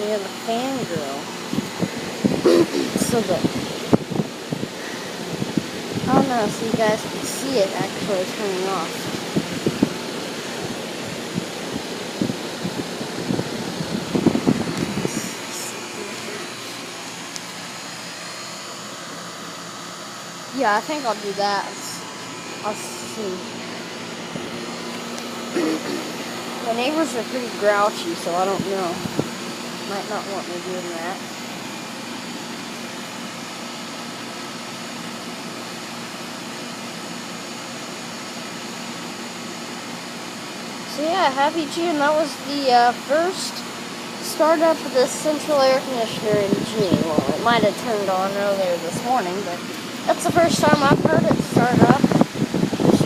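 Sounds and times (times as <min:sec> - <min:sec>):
air conditioner unit humming: 0:00.0 - 0:53.0.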